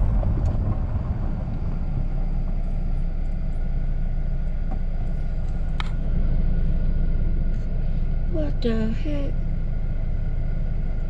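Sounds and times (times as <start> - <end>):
car rumbling on gravel road: 0.0 - 11.0.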